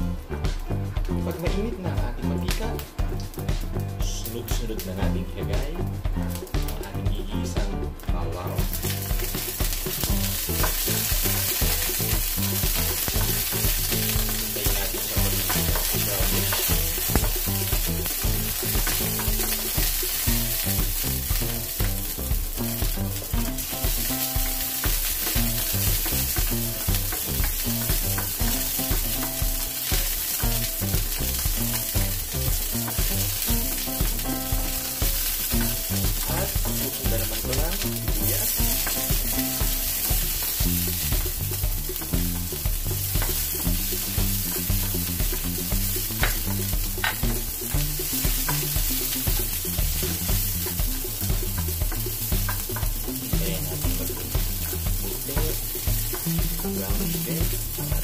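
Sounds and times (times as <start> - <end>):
background music with steady beat: 0.0 - 58.0
garlic sizzling in hot oil: 0.0 - 58.0
spatula clicking on pan: 8.9 - 41.0.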